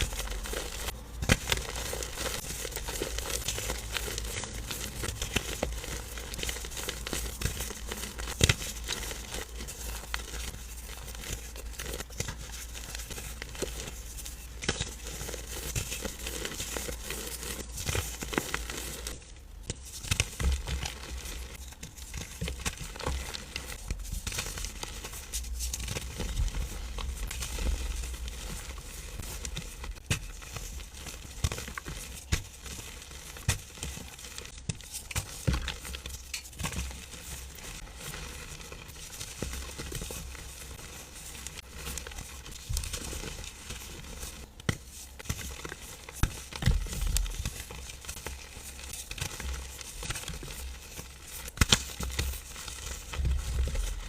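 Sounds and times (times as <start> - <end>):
powder blocks crunching: 0.0 - 19.2.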